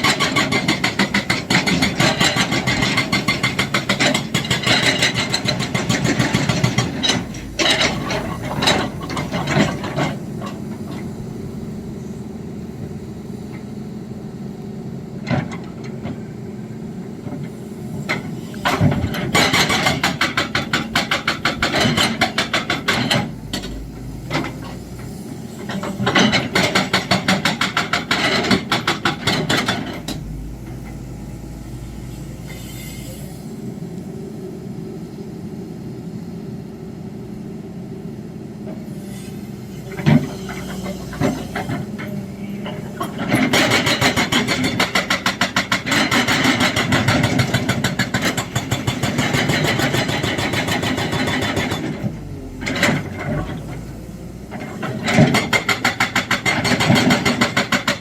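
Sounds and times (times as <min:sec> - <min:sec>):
excavator diesel engine running: 0:00.0 - 0:58.0
hydraulic breaker hammering: 0:18.8 - 0:23.8, 0:25.8 - 0:30.3, 0:54.7 - 0:58.0.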